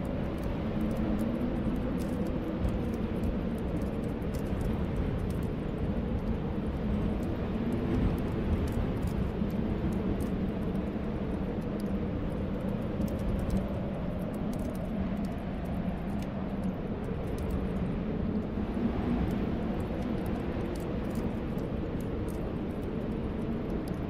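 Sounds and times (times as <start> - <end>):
fireplace fire crackling: 0.0 - 24.0.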